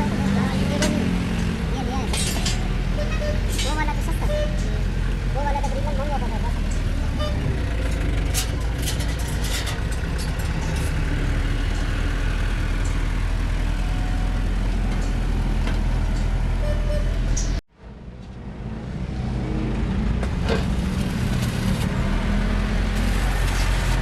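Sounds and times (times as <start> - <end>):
vehicle engine running: 0.0 - 19.2.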